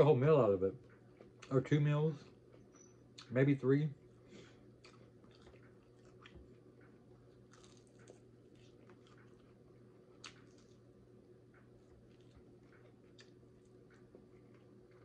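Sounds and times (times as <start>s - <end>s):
person chewing chicken: 4.2s - 15.0s.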